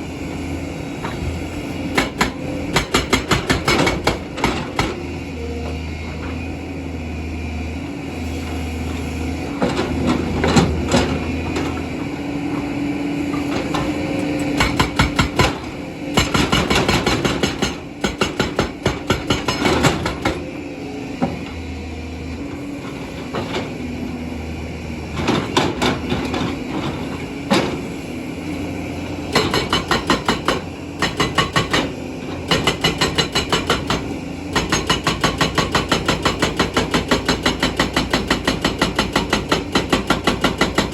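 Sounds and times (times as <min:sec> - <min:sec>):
diesel engine running: 0:00.0 - 0:40.9
hydraulic rock breaker hammering: 0:01.0 - 0:05.2, 0:13.3 - 0:20.6, 0:25.0 - 0:40.9.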